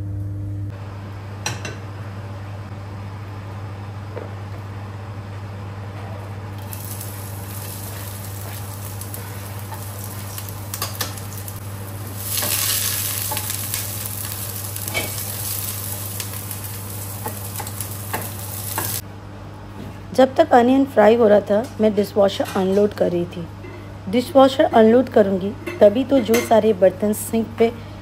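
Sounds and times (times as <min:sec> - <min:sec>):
steady low hum: 0:00.0 - 0:22.3
onion sizzling in hot oil: 0:06.6 - 0:19.0.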